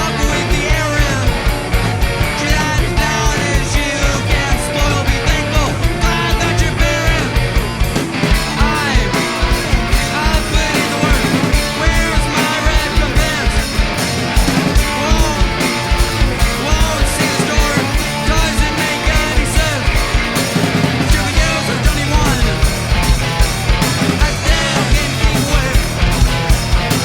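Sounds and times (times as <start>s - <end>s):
rock band playing live: 0.0s - 27.0s.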